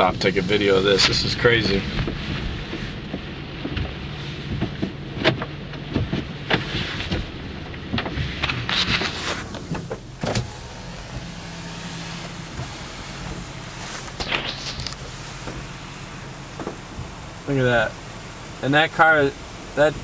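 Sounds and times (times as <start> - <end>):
car engine idling: 0.0 - 20.0
power window motor: 8.4 - 17.4
hissing noise: 8.4 - 20.0.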